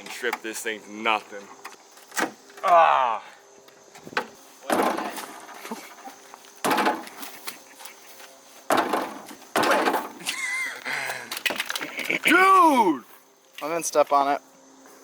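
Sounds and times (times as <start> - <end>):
car parts rattling: 4.0 - 7.5, 8.7 - 10.2, 11.3 - 12.2
loud cracking knocks: 4.2 - 5.4, 6.6 - 7.2, 8.7 - 10.2.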